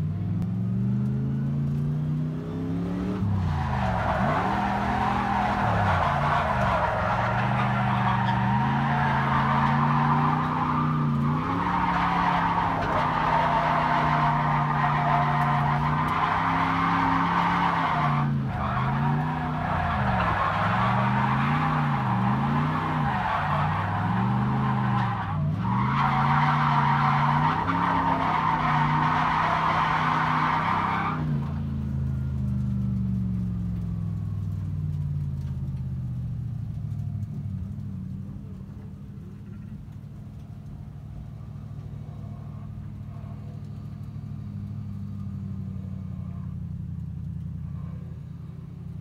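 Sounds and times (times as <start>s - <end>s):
car engine revving: 0.0s - 47.8s
tyres squealing: 3.4s - 31.3s.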